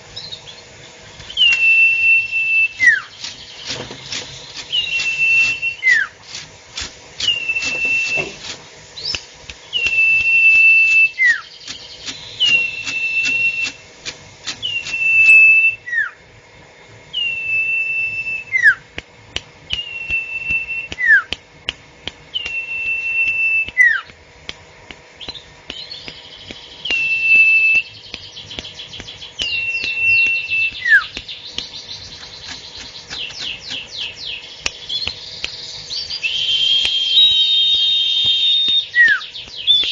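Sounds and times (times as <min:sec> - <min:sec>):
songbird whistling: 0:01.2 - 0:06.2, 0:07.2 - 0:16.2, 0:17.1 - 0:18.9, 0:19.7 - 0:21.4, 0:22.3 - 0:24.1, 0:25.2 - 0:39.9
bird ticking chatter: 0:02.8 - 0:06.1, 0:07.2 - 0:15.5, 0:25.2 - 0:36.3.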